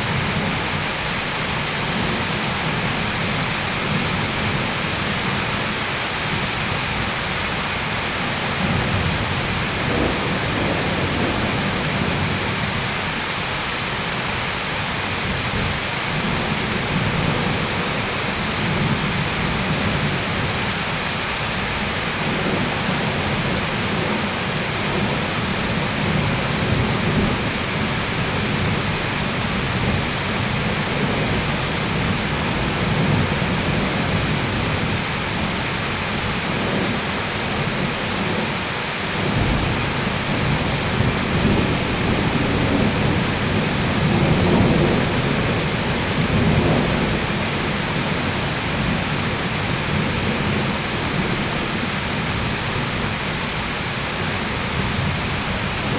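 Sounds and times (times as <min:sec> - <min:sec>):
low thunder rumbling: 0:00.0 - 0:14.4, 0:15.0 - 0:55.9
heavy rain falling: 0:00.0 - 0:55.9.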